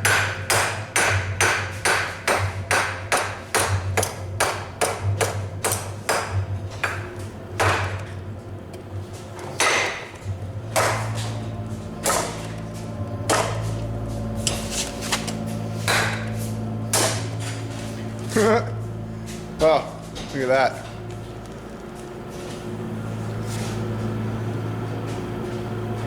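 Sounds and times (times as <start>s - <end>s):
hammer striking iron on anvil: 0.0s - 8.0s, 10.8s - 11.1s, 12.0s - 12.4s, 13.3s - 13.7s, 15.8s - 17.3s
low hum: 5.0s - 26.0s.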